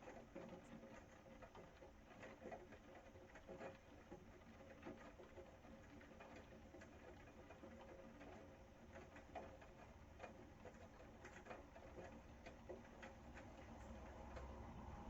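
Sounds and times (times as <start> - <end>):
faint rain patter: 0.0 - 15.0
faint steady hum: 5.0 - 15.0.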